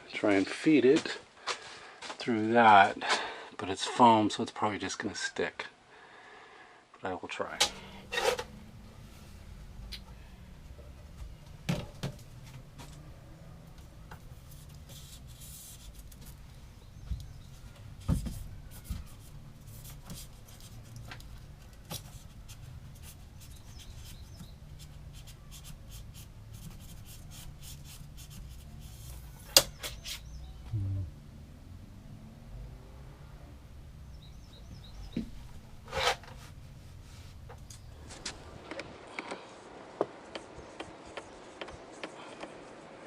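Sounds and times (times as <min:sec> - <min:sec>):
low steady hum: 0:07.5 - 0:18.8, 0:30.4 - 0:39.1.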